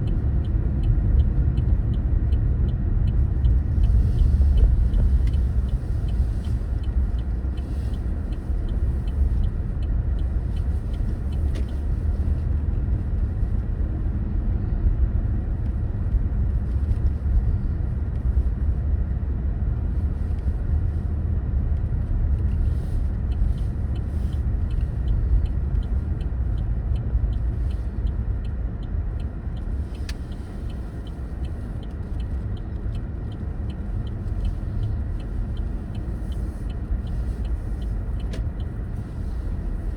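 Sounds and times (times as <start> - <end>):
faint regular ticking: 0.0 - 14.0, 22.4 - 39.9
car road and engine rumble: 0.0 - 39.9.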